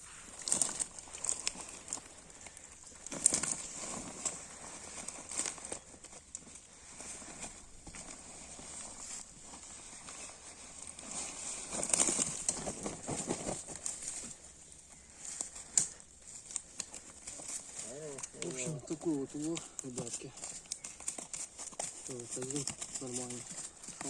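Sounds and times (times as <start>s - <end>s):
rustling: 0.0s - 24.0s.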